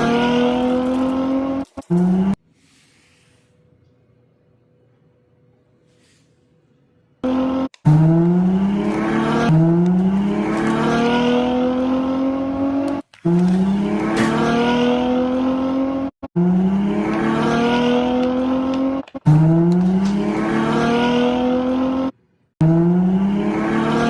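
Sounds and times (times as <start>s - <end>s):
sports car engine accelerating: 0.0s - 2.4s, 7.2s - 24.0s.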